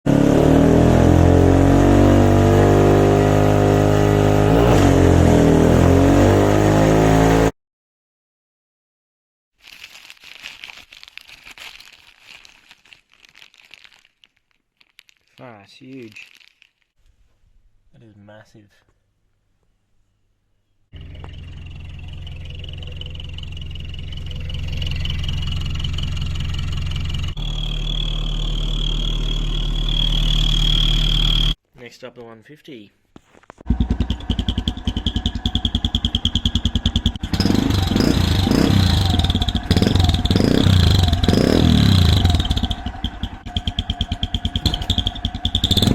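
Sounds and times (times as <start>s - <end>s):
car engine running: 21.0s - 31.6s, 33.7s - 45.9s
turbo whistle: 21.0s - 31.6s.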